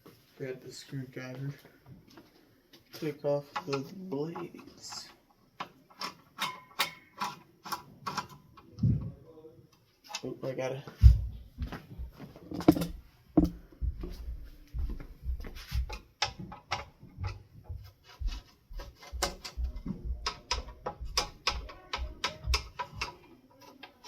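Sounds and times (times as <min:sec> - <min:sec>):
screwdriver clicks and clinks: 0:06.0 - 0:08.4.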